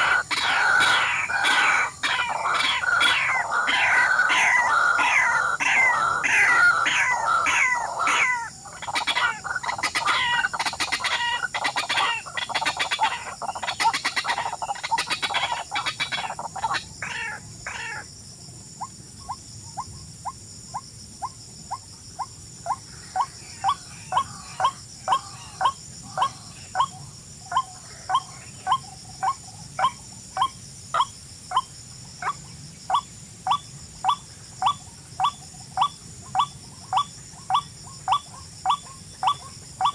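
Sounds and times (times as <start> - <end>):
birds calling with sliding notes: 0.0 - 16.8.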